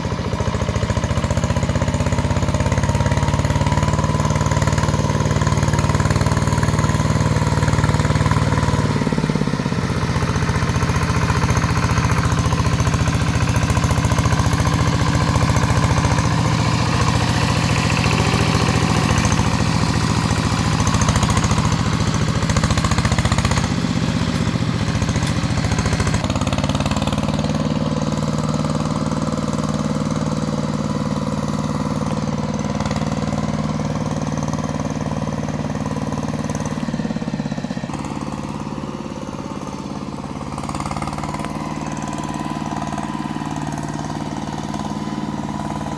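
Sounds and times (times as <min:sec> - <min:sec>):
hand tractor engine running: 0:00.0 - 0:45.9.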